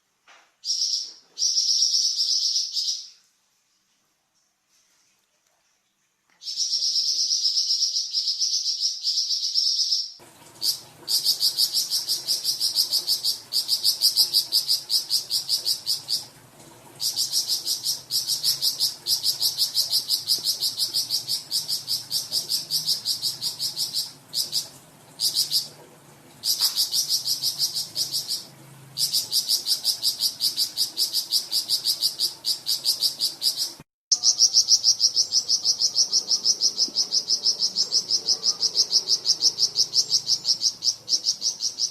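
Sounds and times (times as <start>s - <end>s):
bird singing fast sharp trills: 26.4s - 41.9s.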